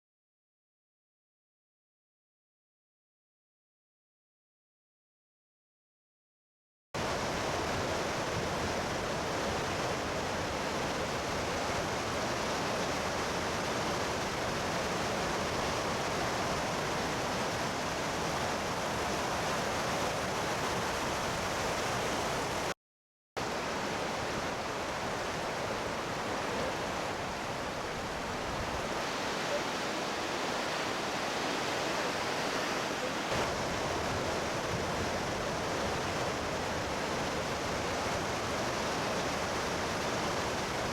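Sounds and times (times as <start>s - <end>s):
rush of falling water: 7.0s - 22.8s, 23.4s - 40.9s.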